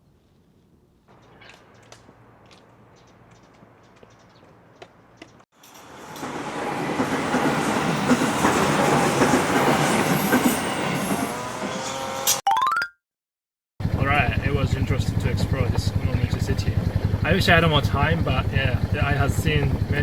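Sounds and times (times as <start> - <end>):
train clattering on rails: 5.2 - 12.1.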